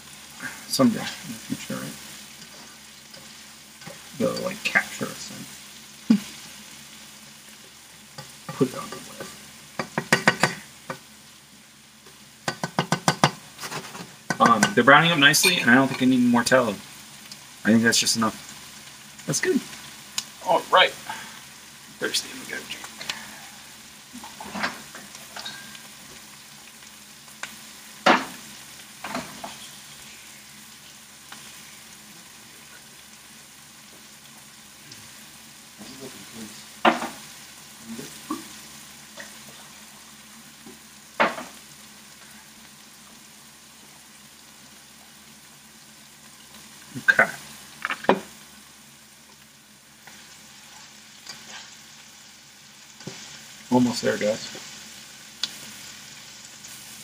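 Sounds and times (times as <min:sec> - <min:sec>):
vegetables sizzling in pan: 0:00.0 - 0:57.0.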